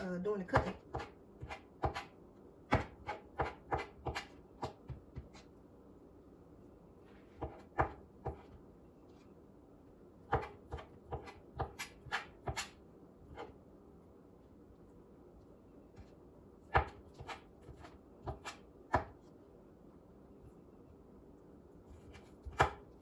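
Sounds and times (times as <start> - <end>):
knife chopping on cutting board: 0.5 - 2.1, 2.7 - 5.5, 7.4 - 8.6, 10.3 - 13.5, 16.7 - 19.2, 21.9 - 23.0.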